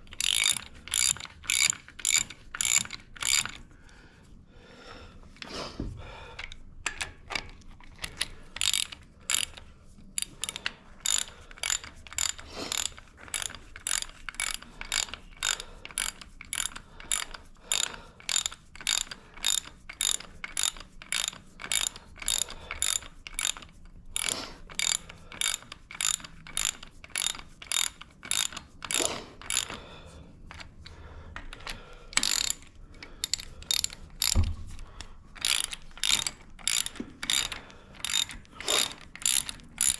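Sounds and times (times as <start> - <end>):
ratchet wrench clicking: 0.0 - 3.6, 6.4 - 29.8, 31.4 - 39.9.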